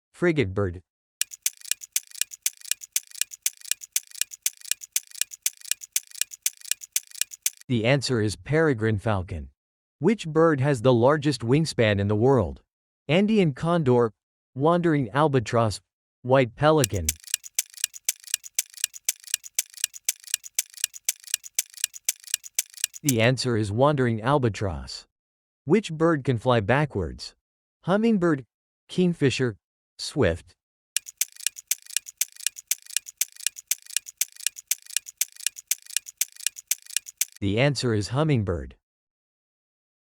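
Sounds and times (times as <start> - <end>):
countdown timer ticking: 1.2 - 7.6, 16.8 - 23.2, 31.0 - 37.4.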